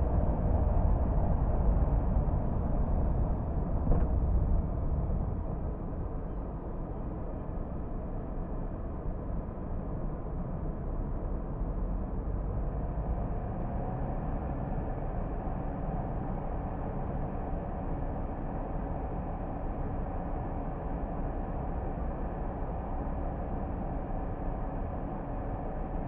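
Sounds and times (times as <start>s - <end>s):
car engine rumble: 0.0s - 26.0s
faint whine: 0.0s - 26.0s.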